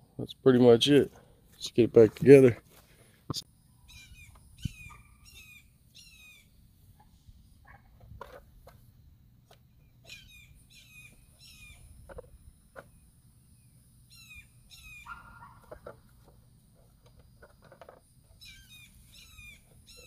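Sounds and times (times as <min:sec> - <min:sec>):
faint bird calls: 0:03.7 - 0:07.9, 0:10.0 - 0:13.0, 0:14.1 - 0:16.0, 0:18.3 - 0:20.0.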